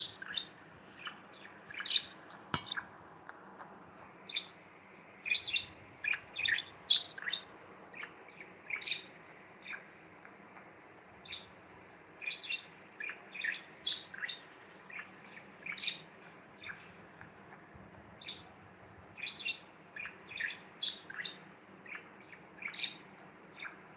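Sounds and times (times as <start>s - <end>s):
budgerigar chirping: 0.0s - 2.8s, 5.2s - 7.4s, 8.0s - 9.9s, 11.2s - 11.5s, 12.2s - 16.8s, 19.2s - 23.8s.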